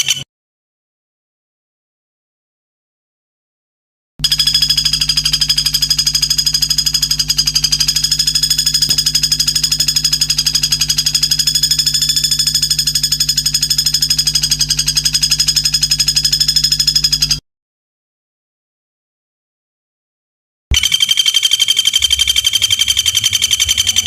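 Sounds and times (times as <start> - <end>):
rapidly pulsing high trill: 4.2 - 16.1, 20.7 - 24.0
steady low hum: 4.2 - 17.4.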